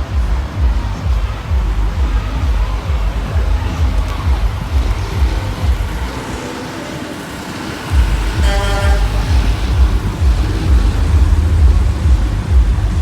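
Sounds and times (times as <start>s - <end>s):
truck engine rumbling past: 0.0s - 13.0s
truck horn blast: 7.6s - 11.5s.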